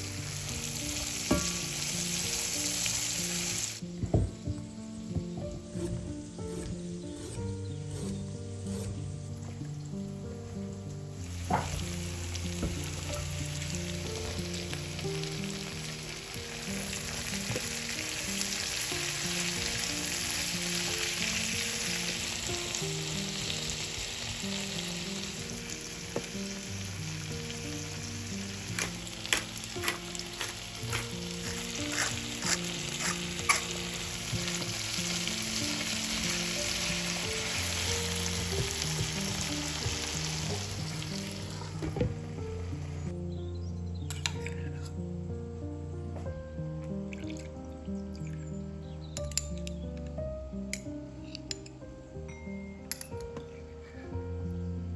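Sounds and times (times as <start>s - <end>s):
food sizzling in oil: 0.0s - 43.1s
utensil clicking against pan: 28.7s - 33.8s.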